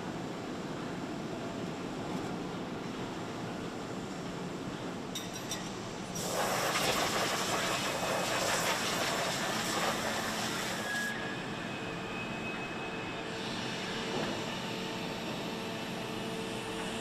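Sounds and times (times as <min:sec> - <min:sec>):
factory machinery noise: 0:00.0 - 0:17.0
loud hiss: 0:06.2 - 0:11.1.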